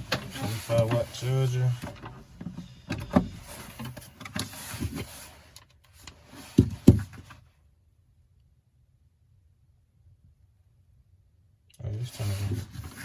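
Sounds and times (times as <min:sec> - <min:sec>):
light knocks and rubbing: 0:00.0 - 0:05.3.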